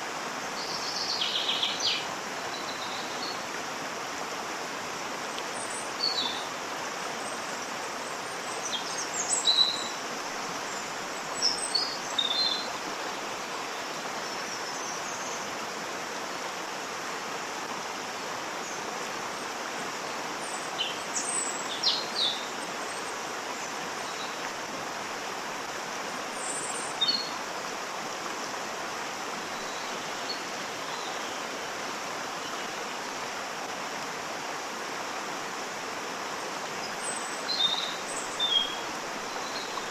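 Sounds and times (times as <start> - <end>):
waterfall rushing: 0.0 - 39.9
small birds chirping: 36.8 - 39.9.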